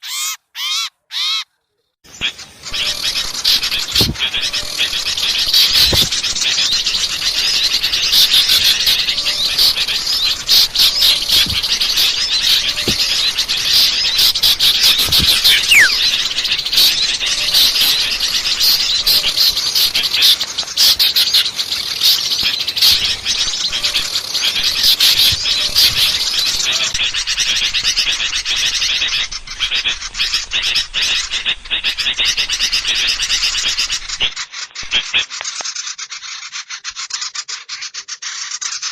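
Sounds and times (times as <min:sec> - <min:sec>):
songbirds chattering and twittering: 0:02.1 - 0:38.9
falling whistle: 0:15.4 - 0:16.1.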